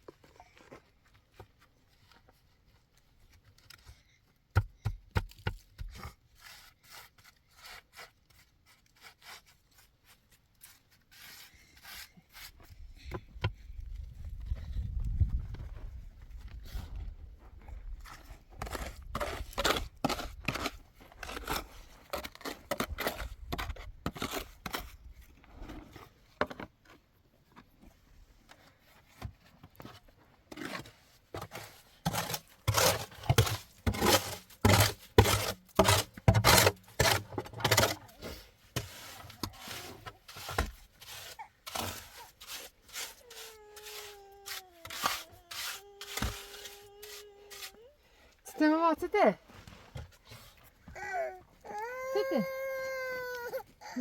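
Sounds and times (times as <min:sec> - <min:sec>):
sharp knocks and scrapes: 0:29.0 - 0:44.0.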